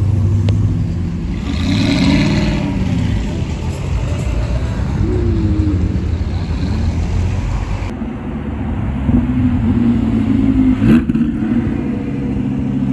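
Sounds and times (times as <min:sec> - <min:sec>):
cars driving slowly past: 0:00.0 - 0:12.9
engine quick rising rev: 0:01.2 - 0:07.9.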